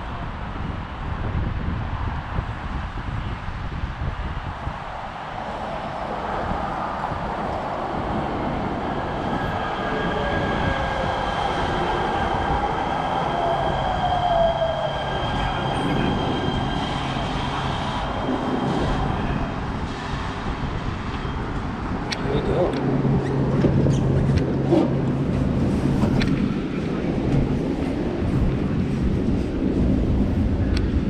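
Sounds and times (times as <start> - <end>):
train wheels rumbling on track: 4.5 - 31.0
train squeal: 9.2 - 20.2.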